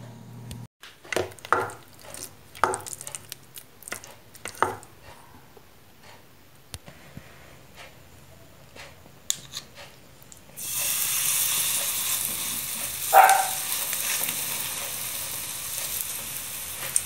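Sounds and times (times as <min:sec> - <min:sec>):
burger mixture sizzling in oil: 0:10.6 - 0:17.0.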